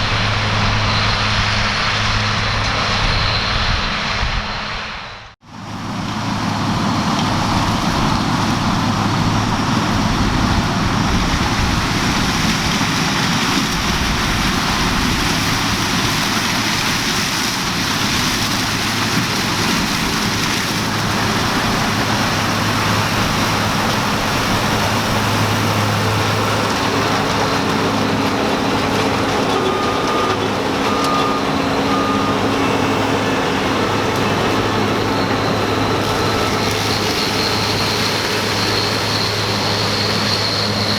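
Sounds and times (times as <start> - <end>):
diesel engine drone: 0.0 - 40.9
short beeps: 29.6 - 32.8.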